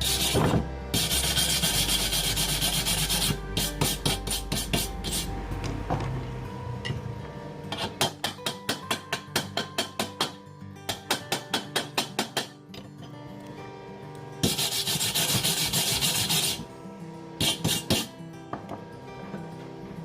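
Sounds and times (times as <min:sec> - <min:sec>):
rapid scraping strokes: 0:00.0 - 0:05.3, 0:14.4 - 0:16.6
background music: 0:00.0 - 0:20.0.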